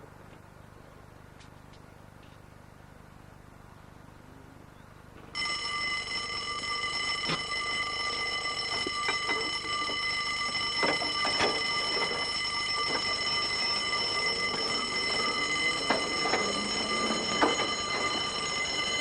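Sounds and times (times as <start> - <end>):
wheels clicking and knocking on track: 6.2 - 19.0
tram wheels squealing on rails: 7.8 - 19.0.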